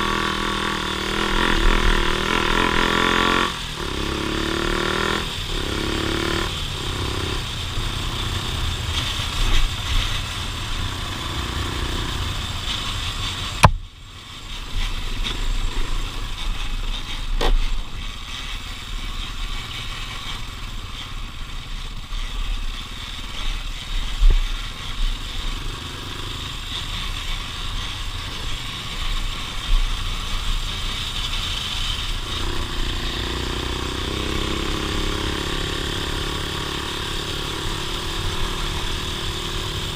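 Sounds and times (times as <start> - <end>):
off-road vehicle engine revving: 0.0 - 13.7, 22.2 - 39.9.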